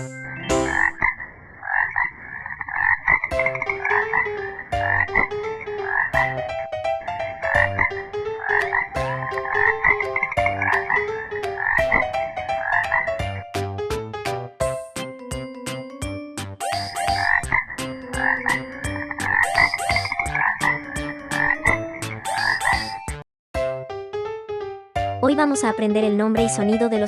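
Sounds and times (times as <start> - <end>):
frog croaking: 0.6 - 6.4, 7.5 - 12.0, 16.8 - 22.9.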